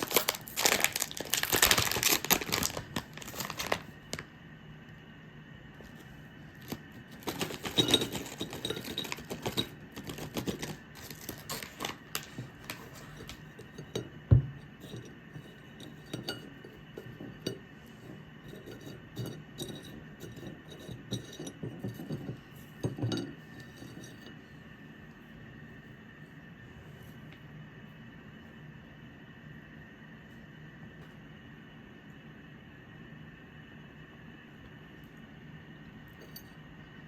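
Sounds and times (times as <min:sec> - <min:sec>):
small hard objects clinking: 0:00.0 - 0:04.2, 0:06.6 - 0:13.4.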